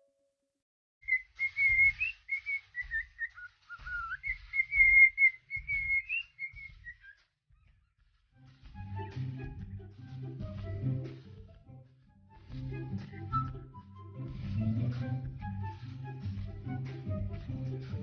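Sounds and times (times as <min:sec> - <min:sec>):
parrot whistling a tune: 0:01.1 - 0:07.1.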